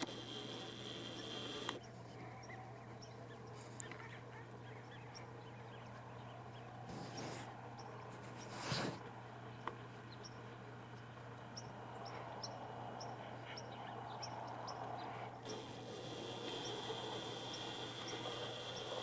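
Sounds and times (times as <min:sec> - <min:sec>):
steady high hiss: 0:00.0 - 0:01.8, 0:15.4 - 0:19.0.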